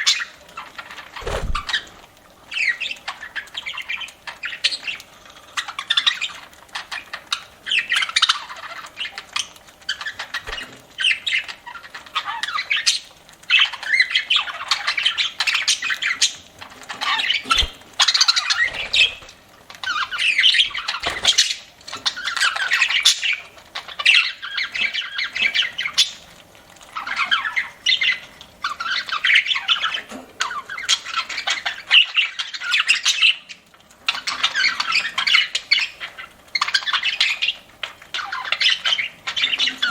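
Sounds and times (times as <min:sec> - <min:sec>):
budgerigars chattering and warbling: 0:01.2 - 0:26.2, 0:27.0 - 0:39.9.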